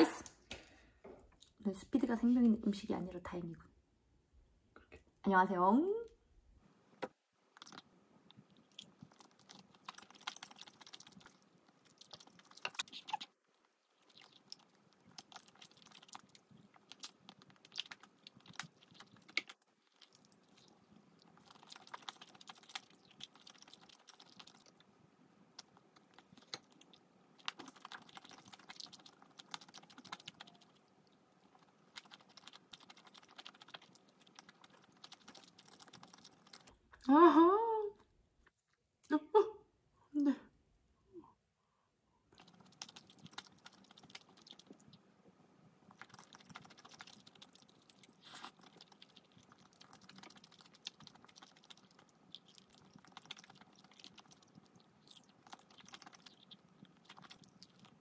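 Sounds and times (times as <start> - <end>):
chewing and crunching: 7.5 - 37.0, 42.3 - 45.1, 45.8 - 58.0.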